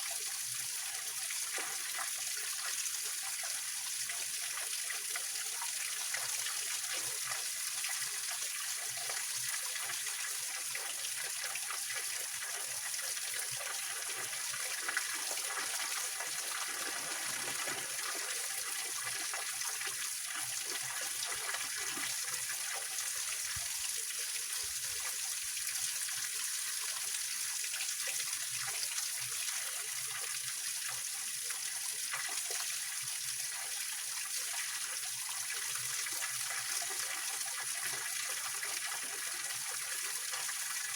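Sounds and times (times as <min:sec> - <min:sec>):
water splashing over rocks: 0:14.9 - 0:19.2.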